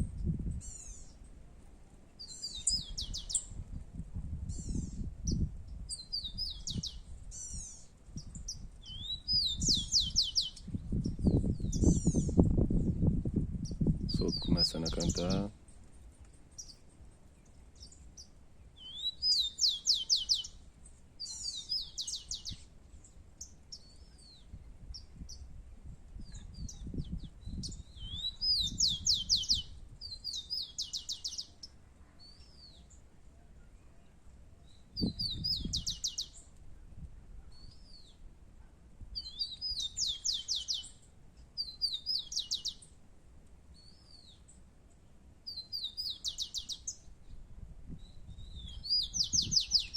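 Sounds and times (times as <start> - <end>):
sparrow singing whistles and trill: 0.1 - 1.3, 2.2 - 3.6, 4.5 - 15.5, 17.8 - 20.6, 21.2 - 22.7, 26.2 - 33.0, 34.6 - 36.5, 37.4 - 38.2, 39.2 - 43.0, 43.8 - 44.5, 45.5 - 49.9.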